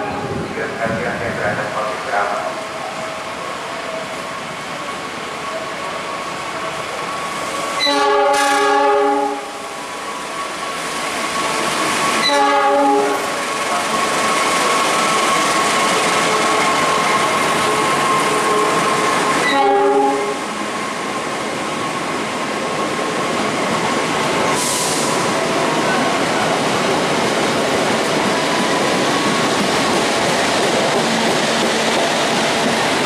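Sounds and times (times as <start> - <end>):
train wheels rattling on rails: 0.0 - 33.0
train horn blast: 7.8 - 9.5, 12.2 - 13.4, 19.4 - 20.4.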